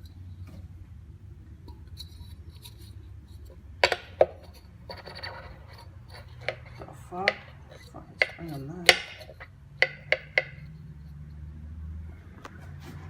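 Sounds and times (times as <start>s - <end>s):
rubbing and scraping: 1.4s - 11.5s.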